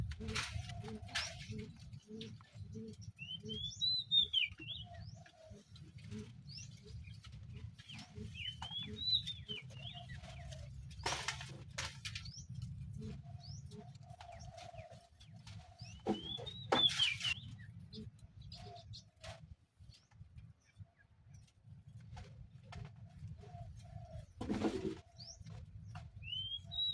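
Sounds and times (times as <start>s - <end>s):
birds whistling calls: 0.2s - 7.1s, 7.8s - 11.1s, 12.2s - 19.0s, 23.5s - 26.9s.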